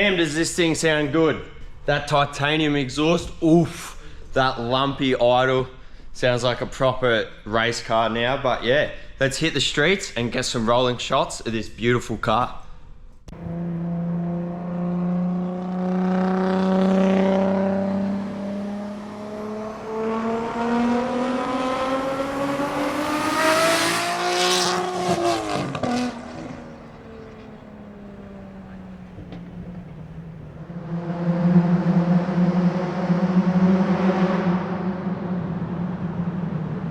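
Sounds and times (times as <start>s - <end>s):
exhaust crackling: 13.3s - 31.1s
car engine revving: 13.3s - 36.9s.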